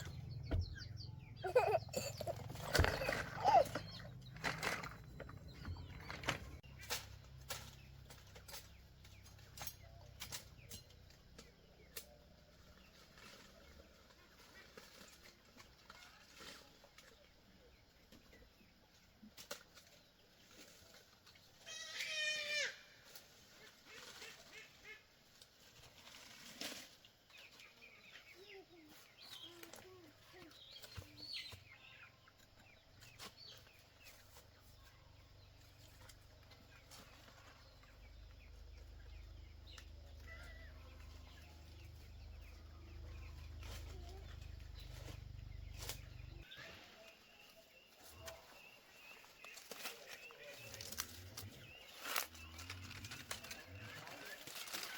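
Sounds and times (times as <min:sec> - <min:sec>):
chickens clucking: 0:00.0 - 0:06.9, 0:28.6 - 0:47.0.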